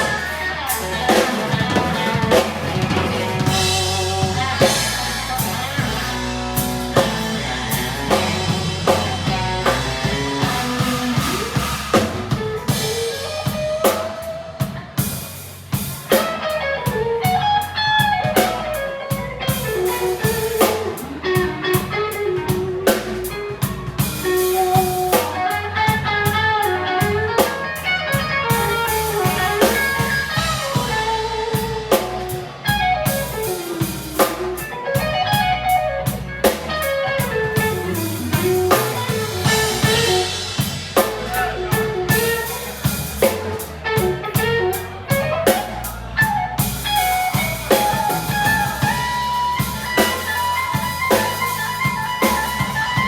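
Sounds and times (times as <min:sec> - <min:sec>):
bass: 0:00.0 - 0:53.0
drum kit: 0:00.0 - 0:53.0
electric guitar lead line: 0:00.0 - 0:53.0.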